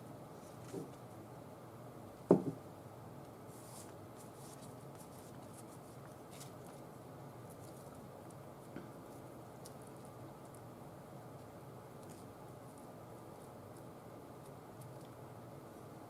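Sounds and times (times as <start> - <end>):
knock on a tabletop: 2.3 - 2.6
faint scratching and rustling: 3.5 - 10.7.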